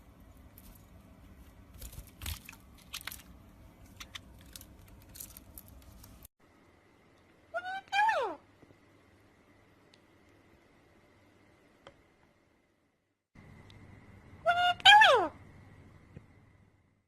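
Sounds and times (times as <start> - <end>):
parrot crunching and chewing: 0.1 - 6.3.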